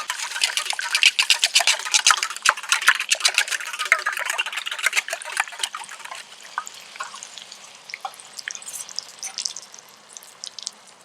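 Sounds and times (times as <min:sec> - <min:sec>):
food popping and crackling in pan: 0:00.0 - 0:11.0
faint steady hiss: 0:06.2 - 0:11.0.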